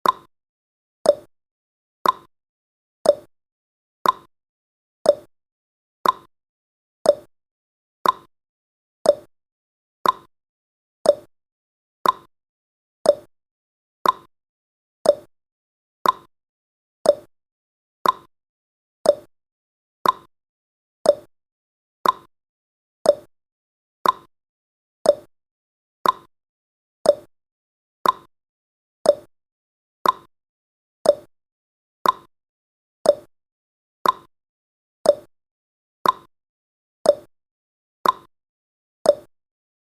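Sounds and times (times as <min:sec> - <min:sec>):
timer ticking: 0:00.0 - 0:00.3, 0:01.1 - 0:01.3, 0:02.0 - 0:02.3, 0:03.0 - 0:03.3, 0:04.0 - 0:04.3, 0:05.1 - 0:05.3, 0:06.0 - 0:06.3, 0:07.1 - 0:07.3, 0:08.0 - 0:08.3, 0:09.0 - 0:09.3, 0:10.0 - 0:10.3, 0:11.0 - 0:11.3, 0:12.0 - 0:12.3, 0:13.0 - 0:13.3, 0:14.0 - 0:14.3, 0:15.0 - 0:15.3, 0:16.0 - 0:16.3, 0:17.0 - 0:17.3, 0:18.0 - 0:18.3, 0:19.0 - 0:19.3, 0:20.0 - 0:20.3, 0:21.0 - 0:21.3, 0:22.0 - 0:22.3, 0:23.0 - 0:23.3, 0:24.0 - 0:24.3, 0:25.0 - 0:25.3, 0:26.0 - 0:26.3, 0:27.0 - 0:27.3, 0:28.0 - 0:28.3, 0:29.0 - 0:29.3, 0:30.0 - 0:30.3, 0:31.0 - 0:31.3, 0:32.0 - 0:32.3, 0:33.0 - 0:33.3, 0:34.0 - 0:34.3, 0:35.0 - 0:35.3, 0:36.0 - 0:36.3, 0:37.1 - 0:37.3, 0:38.0 - 0:38.3, 0:39.1 - 0:39.3.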